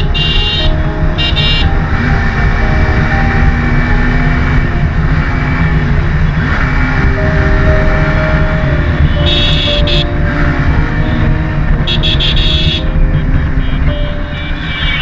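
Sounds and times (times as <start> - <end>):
vehicle horn honk: 0.0 - 1.8, 8.9 - 15.0
motorcycle engine: 0.0 - 15.0.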